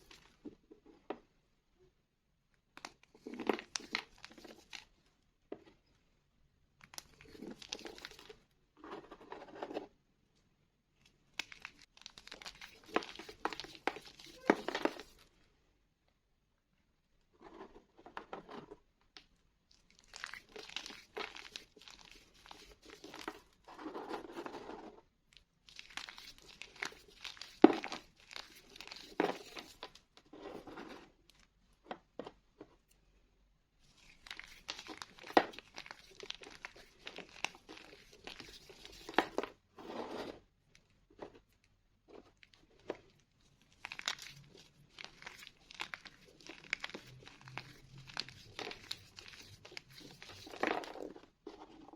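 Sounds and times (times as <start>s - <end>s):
chalk being crushed by hand: 25.7s - 31.0s.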